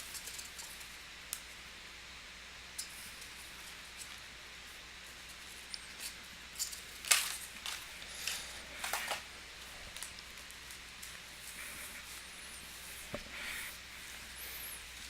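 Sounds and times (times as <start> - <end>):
foil wrappers crinkling: 5.1 - 13.1.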